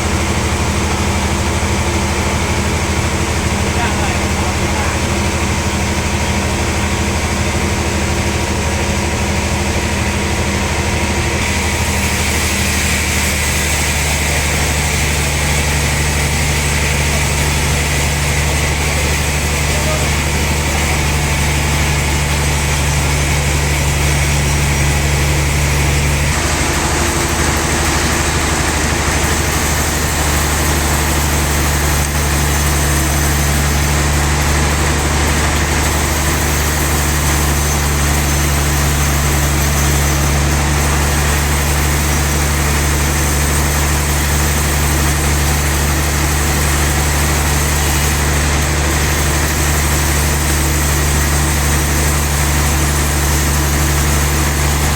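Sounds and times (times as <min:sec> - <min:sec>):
mechanical hum: 0:00.0 - 0:54.9
sawmill saw droning: 0:00.0 - 0:54.9.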